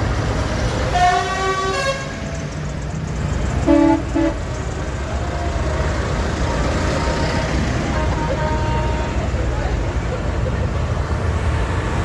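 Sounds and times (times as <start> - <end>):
tractor engines running: 0.0 - 12.0
horn tooting: 0.9 - 2.4, 3.6 - 4.6, 6.5 - 9.3.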